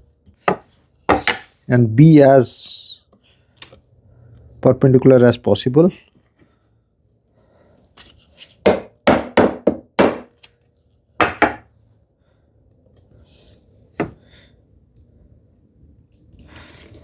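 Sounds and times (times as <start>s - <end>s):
chisel knocking into wood: 8.7s - 10.3s, 11.2s - 11.6s.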